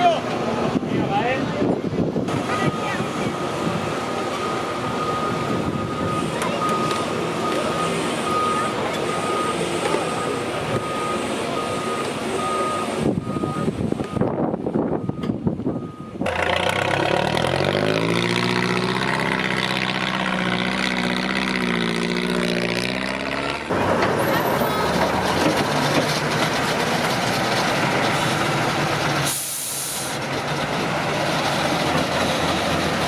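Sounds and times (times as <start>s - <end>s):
diesel truck engine revving: 2.0s - 33.0s
air brakes hiss: 29.2s - 30.2s.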